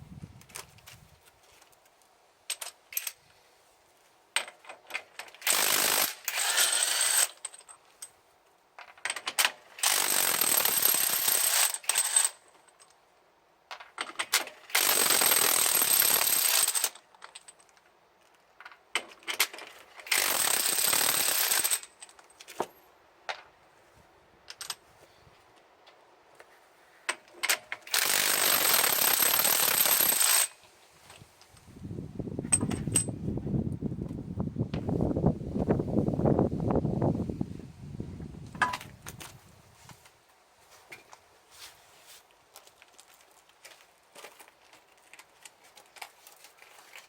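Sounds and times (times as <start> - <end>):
pneumatic impact wrench hammering: 5.4 - 7.4, 9.8 - 12.4, 14.6 - 16.9, 20.0 - 21.9, 27.5 - 30.5.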